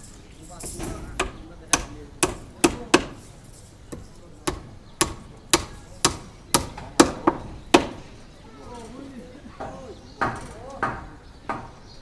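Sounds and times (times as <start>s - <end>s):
hand tool striking blows: 0.0s - 8.1s.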